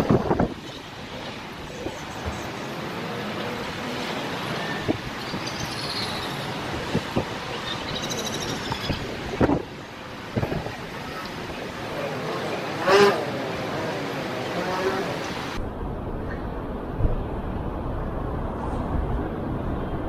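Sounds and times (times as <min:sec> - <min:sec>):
street traffic noise: 0:00.0 - 0:20.0.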